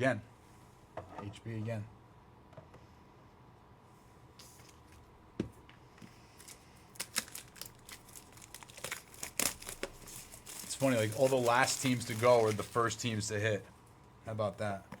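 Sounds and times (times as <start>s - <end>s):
card wrappers crinkling and clicking: 6.4s - 13.2s.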